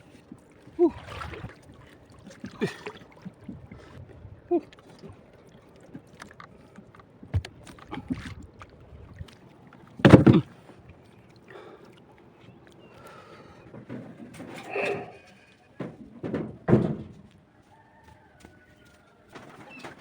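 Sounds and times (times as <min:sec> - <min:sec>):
water lapping around a boat: 0:00.0 - 0:20.0
knocks and thumps on a boat: 0:06.0 - 0:11.0, 0:13.6 - 0:14.7, 0:15.7 - 0:17.4.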